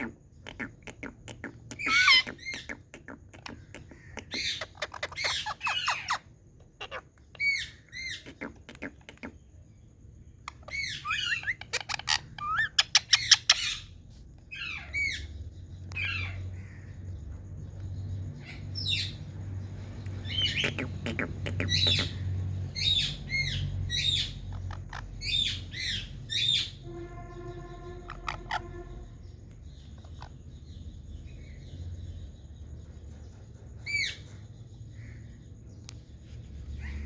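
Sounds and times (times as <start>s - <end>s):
parrot squawking and chattering: 0.0s - 9.6s, 10.4s - 17.0s, 17.8s - 27.0s, 28.0s - 30.4s.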